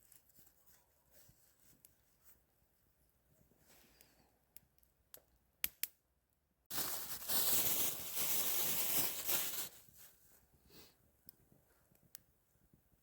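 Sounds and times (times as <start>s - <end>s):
loud rustling crinkling: 6.7s - 10.2s.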